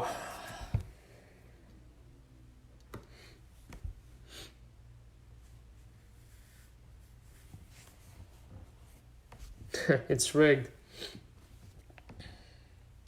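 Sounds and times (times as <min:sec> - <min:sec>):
soft breaths: 0:10.8 - 0:13.0.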